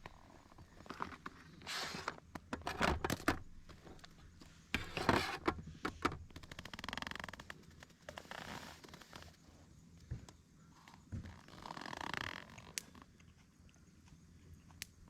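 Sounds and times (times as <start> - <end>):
objects being moved about: 0.8 - 4.1, 4.7 - 6.3.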